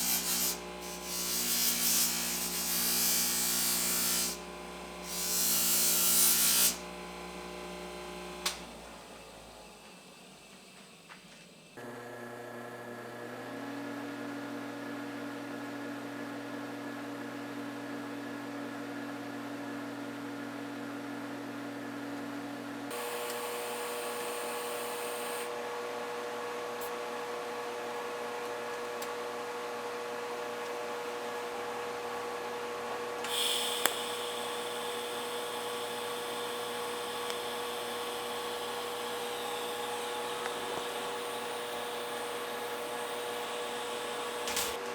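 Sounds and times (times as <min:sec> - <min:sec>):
electric grinder on metal: 0:00.0 - 0:08.6, 0:22.9 - 0:25.6, 0:33.2 - 0:44.9
click: 0:08.4 - 0:08.7, 0:33.2 - 0:34.0, 0:37.2 - 0:37.4.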